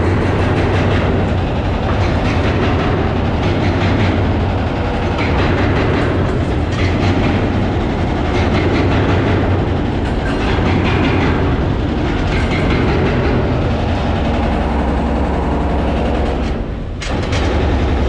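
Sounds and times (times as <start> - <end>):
heavy machinery rumble: 0.0 - 18.0.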